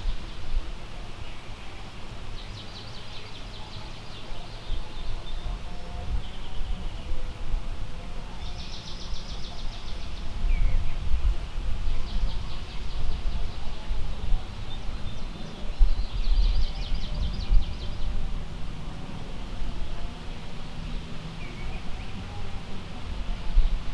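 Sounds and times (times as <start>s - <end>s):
wind rumble on microphone: 0.0s - 23.9s.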